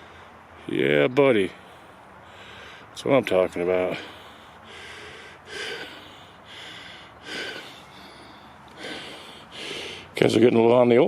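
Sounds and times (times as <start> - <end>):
man breathing hard: 1.6 - 3.0, 3.8 - 10.2.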